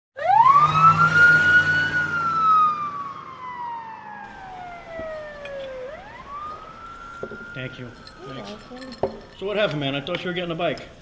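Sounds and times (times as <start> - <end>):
siren wail: 0.2 - 8.9.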